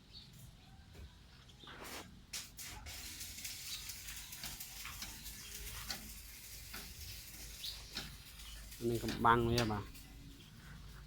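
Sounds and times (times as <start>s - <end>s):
spraying hiss: 2.4s - 10.6s
crackling ticks: 3.1s - 10.2s.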